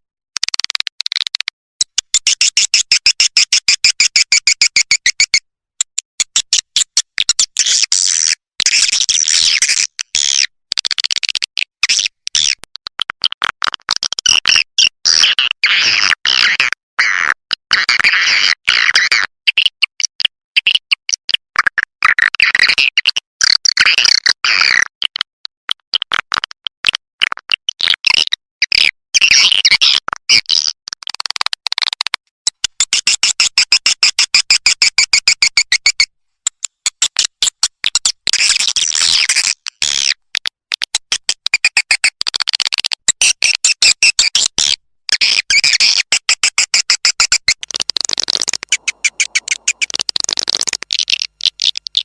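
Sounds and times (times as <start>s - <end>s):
fast run of clicks: 0.4s - 3.5s, 5.8s - 7.2s, 45.9s - 52.0s
swiftlets twittering chirps: 48.0s - 52.0s.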